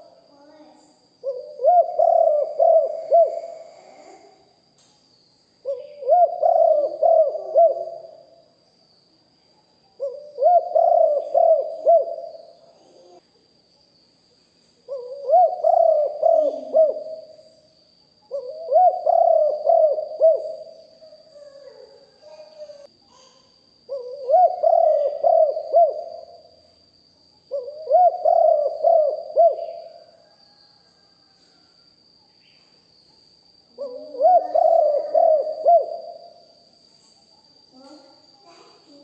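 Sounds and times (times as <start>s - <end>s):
dove cooing: 1.2s - 4.2s, 5.6s - 8.2s, 10.0s - 13.2s, 14.9s - 17.4s, 18.3s - 22.5s, 23.9s - 26.5s, 27.5s - 31.2s, 33.8s - 36.4s.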